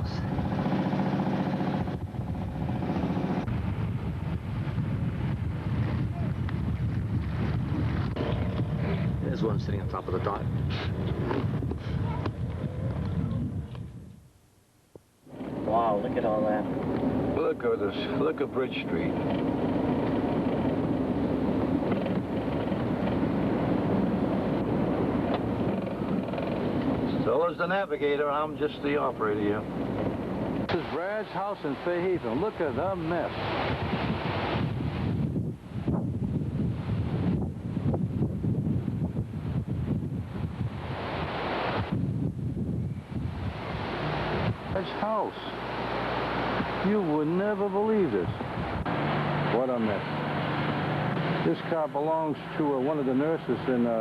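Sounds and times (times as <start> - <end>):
engine running: 0.0 - 3.8, 48.6 - 53.8
wind noise: 0.0 - 54.0.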